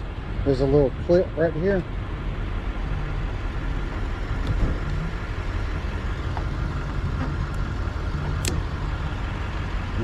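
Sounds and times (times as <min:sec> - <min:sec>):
low vehicle rumble: 0:00.0 - 0:10.0.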